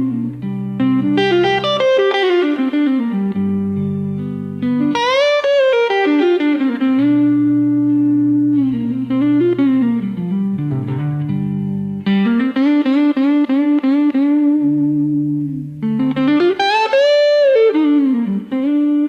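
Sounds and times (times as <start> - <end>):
slow blues on electric guitar: 0.0 - 19.0.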